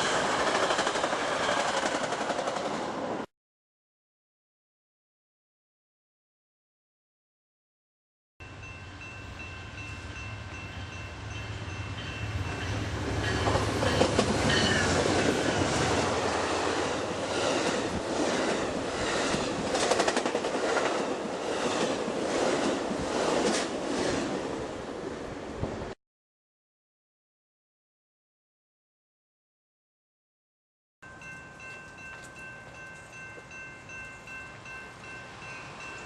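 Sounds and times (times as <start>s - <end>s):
train wheels clicking on rail joints: 0.0s - 2.8s, 12.5s - 24.3s
train engine hum: 0.0s - 3.2s, 8.4s - 25.9s, 31.1s - 36.0s.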